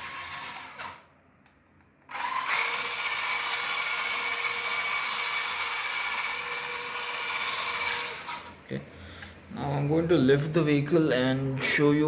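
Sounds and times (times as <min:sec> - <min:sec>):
small electric motor whining: 0:00.0 - 0:01.1, 0:02.1 - 0:08.6.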